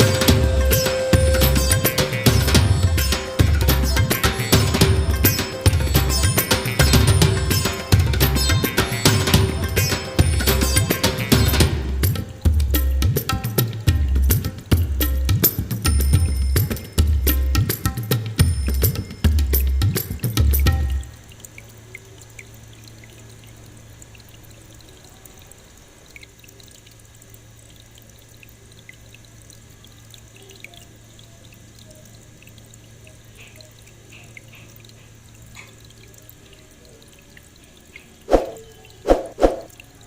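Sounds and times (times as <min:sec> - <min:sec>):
water pump humming: 0:00.0 - 0:15.4
small waterfall trickling and dripping: 0:00.0 - 0:40.0.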